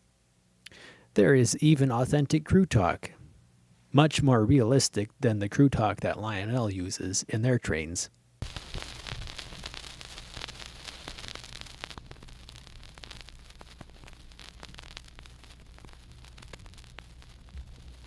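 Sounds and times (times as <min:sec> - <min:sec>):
low mains hum: 0:00.0 - 0:18.0
vinyl record surface hiss: 0:00.0 - 0:18.0
vinyl crackles and clicks: 0:08.4 - 0:18.0.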